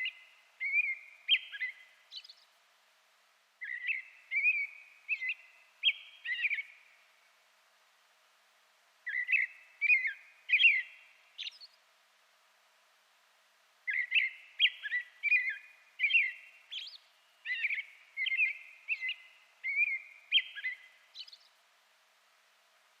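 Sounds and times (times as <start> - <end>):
bird chirping song: 0.0 - 2.6, 3.6 - 7.2, 9.0 - 11.9, 13.8 - 21.6.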